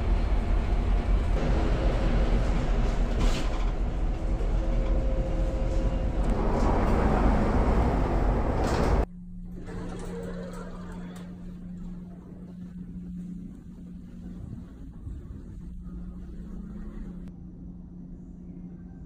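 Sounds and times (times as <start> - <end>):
steady low hum: 0.0 - 19.0
vehicle interior rumble with rattling: 0.8 - 9.1.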